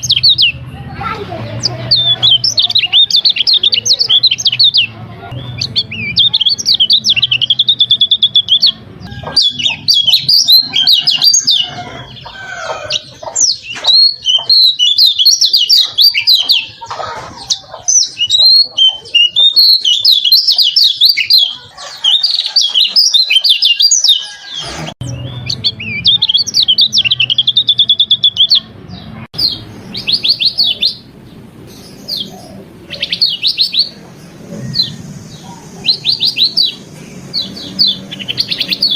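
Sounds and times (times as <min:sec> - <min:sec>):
bird singing trills and warbles: 0:00.0 - 0:38.9.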